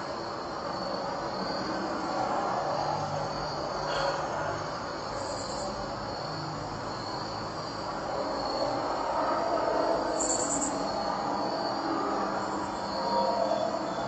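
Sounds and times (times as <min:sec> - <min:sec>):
insects chirping: 0:00.0 - 0:14.0
train rumble and rail noise: 0:00.0 - 0:14.0.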